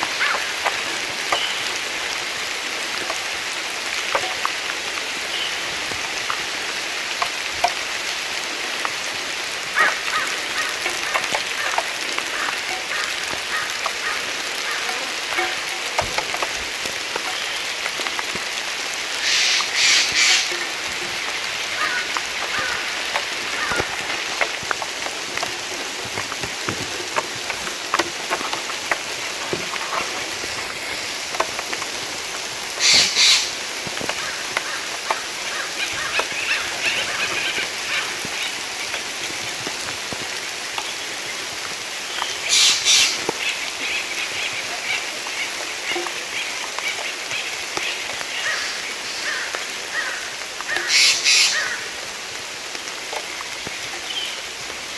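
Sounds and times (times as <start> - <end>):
drops ticking and dripping: 0.0 - 54.9
rain falling through trees: 0.0 - 54.9
bird noisy calls: 19.2 - 20.6, 21.6 - 24.1, 32.8 - 33.6, 34.2 - 38.6, 42.1 - 51.9.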